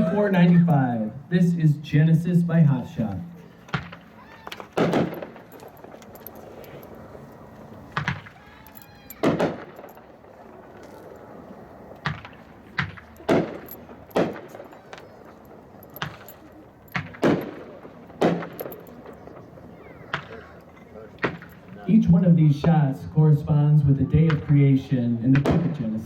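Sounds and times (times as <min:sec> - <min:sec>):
firework bangs: 0:03.7 - 0:05.5, 0:09.2 - 0:10.8.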